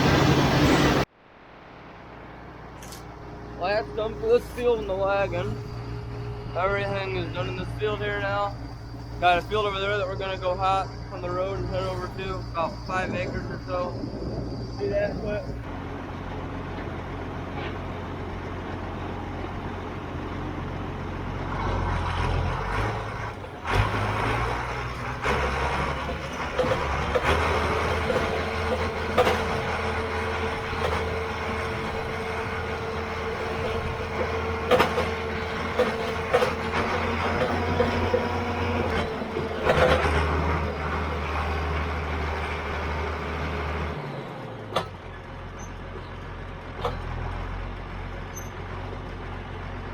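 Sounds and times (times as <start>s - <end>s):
steady whine: 0.0s - 21.4s, 23.0s - 43.2s
diesel engine running: 0.0s - 49.9s
clunks and rattles: 11.8s - 20.4s, 21.3s - 43.6s, 44.2s - 47.4s.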